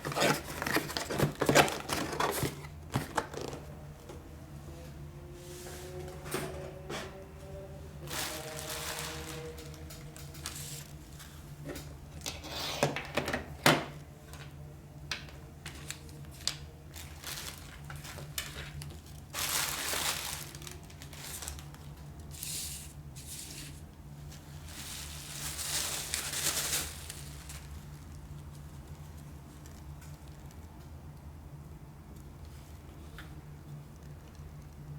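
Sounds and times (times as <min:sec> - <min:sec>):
packaging crinkling and rustling: 0:00.0 - 0:03.7, 0:08.0 - 0:11.4, 0:15.2 - 0:30.6.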